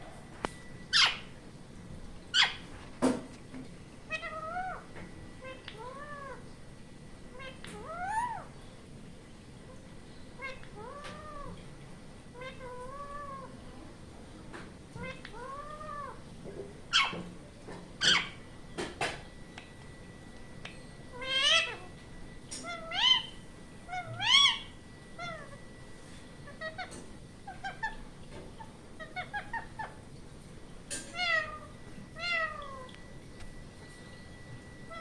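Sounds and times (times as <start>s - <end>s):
parrot calling: 0.8s - 1.4s, 2.3s - 2.7s, 4.0s - 6.4s, 7.3s - 8.6s, 9.7s - 11.6s, 12.3s - 13.6s, 15.0s - 17.4s, 18.0s - 18.5s, 20.6s - 30.2s, 30.9s - 33.1s, 34.8s - 35.0s
parrot screeches: 0.9s - 1.3s, 2.3s - 2.6s, 7.4s - 8.5s, 16.9s - 17.2s, 18.0s - 18.4s, 21.1s - 22.0s, 22.6s - 25.6s, 26.4s - 30.0s, 31.1s - 32.9s.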